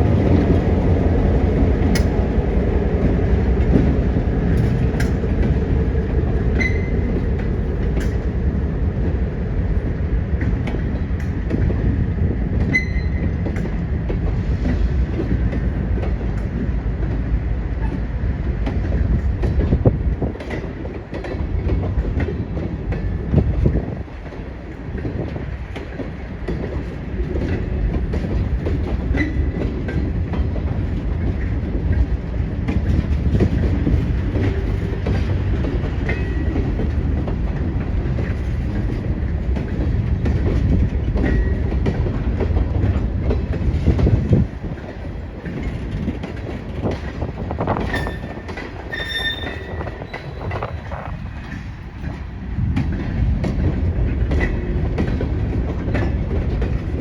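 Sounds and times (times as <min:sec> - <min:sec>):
freight train rumble: 0:00.0 - 0:57.0
wheels clicking over rail joints: 0:00.0 - 0:57.0
high wheel squeals: 0:06.6 - 0:07.0, 0:47.9 - 0:50.5.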